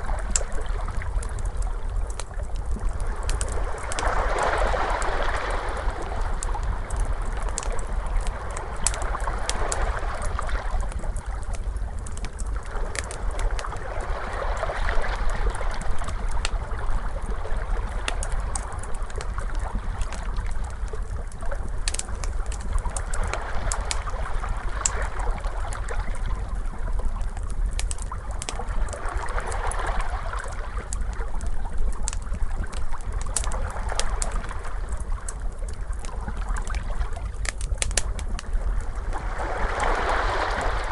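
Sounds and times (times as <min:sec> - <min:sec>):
wood fire crackling: 0:00.0 - 0:40.9
ocean waves washing: 0:39.1 - 0:40.9.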